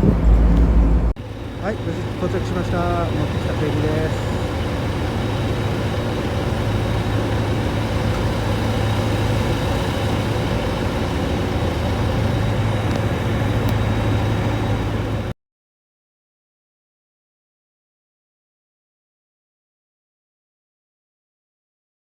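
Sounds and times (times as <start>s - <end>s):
large engine droning: 0.0s - 15.4s.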